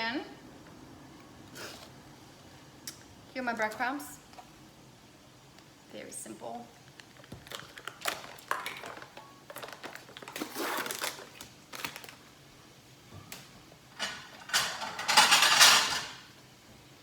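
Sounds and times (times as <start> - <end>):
kitchenware clicks and taps: 14.0 - 16.2.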